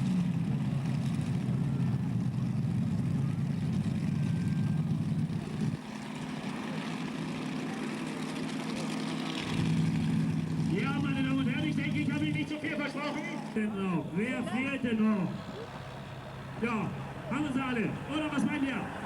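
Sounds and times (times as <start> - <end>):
tractor engine rumble: 0.0 - 19.0.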